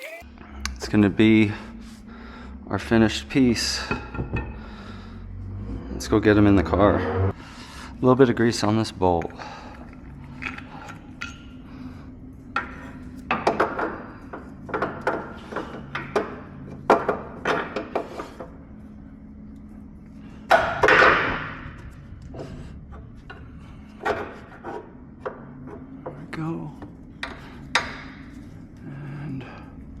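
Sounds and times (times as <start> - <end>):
metal parts and tools knocking: 3.8 - 4.6, 12.5 - 18.5, 27.2 - 28.5.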